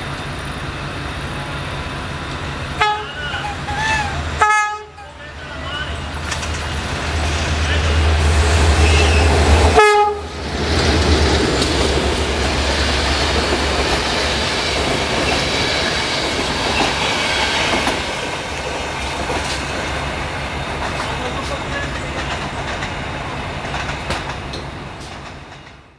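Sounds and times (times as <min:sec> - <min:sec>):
locomotive engine drone: 0:00.0 - 0:25.2
train horn: 0:02.8 - 0:05.0, 0:08.6 - 0:10.4
train wheels clacking on rail joints: 0:10.5 - 0:25.9.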